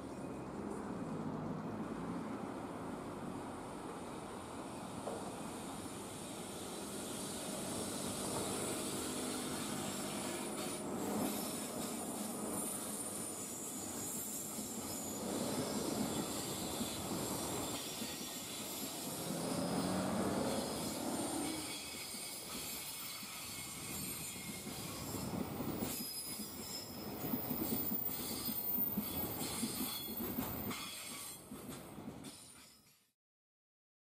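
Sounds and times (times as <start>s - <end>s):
freight train wagons clattering on rails: 14.0s - 33.0s.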